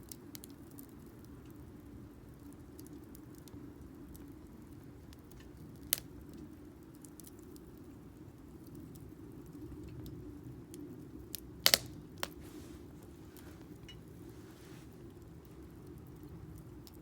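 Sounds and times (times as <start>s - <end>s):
fire crackling pops: 0.0s - 17.0s
firewood burning rumble: 0.0s - 17.0s.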